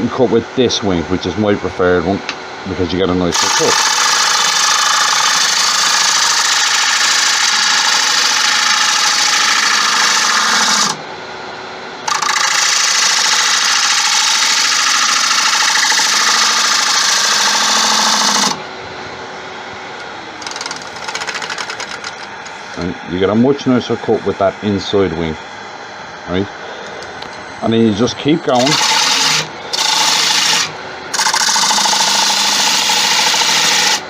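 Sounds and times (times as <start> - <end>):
lathe running: 0.0 - 11.1, 12.0 - 34.0
gouge cutting spinning wood: 3.1 - 11.0, 12.1 - 18.7, 20.4 - 23.5, 27.8 - 34.0.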